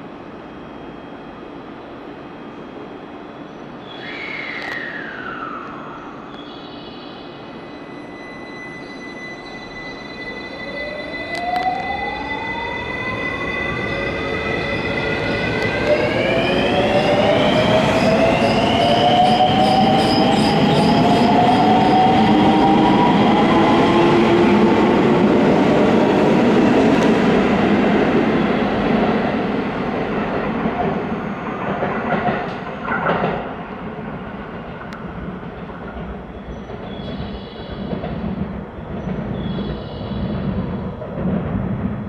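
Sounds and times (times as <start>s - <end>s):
train wheels rumbling on rails: 10.6s - 42.0s.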